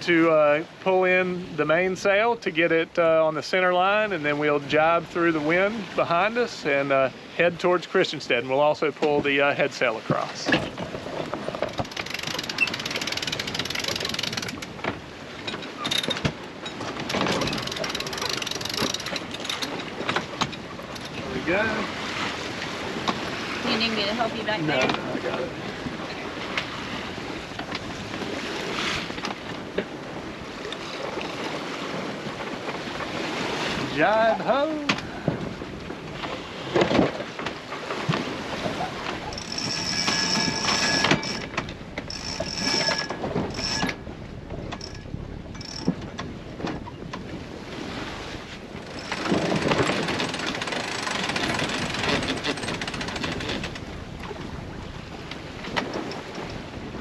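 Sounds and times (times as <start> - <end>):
water rushing past boat: 0.0 - 57.0
sailboat rigging rattling and flapping: 3.4 - 57.0
boat gear clicks and knocks: 10.1 - 21.3, 27.5 - 30.0, 34.8 - 47.4, 48.7 - 54.6, 55.2 - 56.7
wind on microphone: 10.4 - 57.0.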